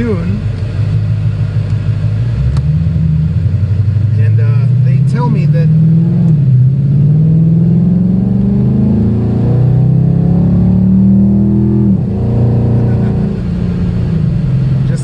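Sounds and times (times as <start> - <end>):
car exhaust accelerating hard: 0.0 - 15.0.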